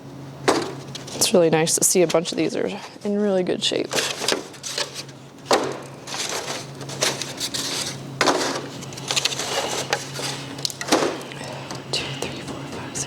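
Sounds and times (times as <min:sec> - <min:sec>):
plastic trays crinkling and clattering: 0:03.9 - 0:11.8.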